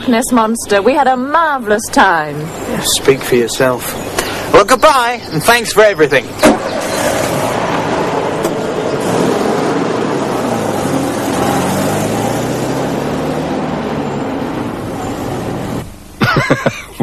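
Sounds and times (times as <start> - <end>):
car engine accelerating: 6.5 - 16.0.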